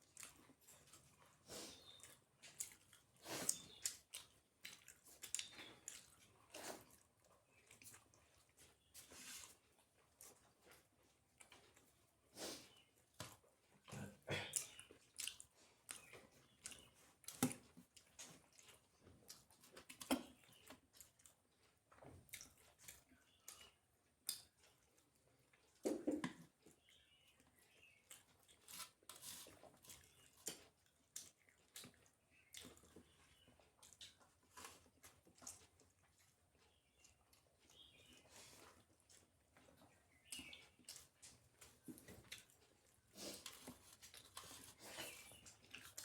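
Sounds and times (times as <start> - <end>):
person chewing food: 0.0 - 46.0.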